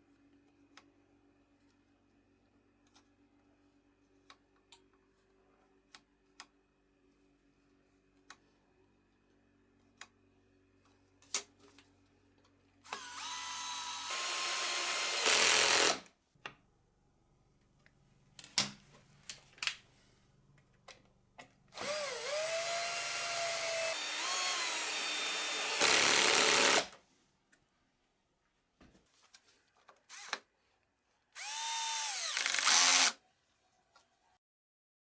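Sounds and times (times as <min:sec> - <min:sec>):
power drill motor whine: 0:12.9 - 0:16.0, 0:21.8 - 0:26.9, 0:30.1 - 0:30.4, 0:31.4 - 0:33.1.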